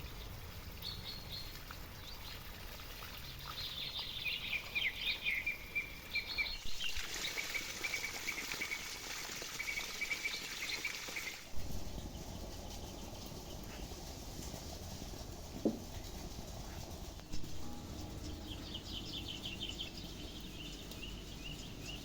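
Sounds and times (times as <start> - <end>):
small birds chirping: 0.0 - 22.0
low steady noise: 11.4 - 22.0.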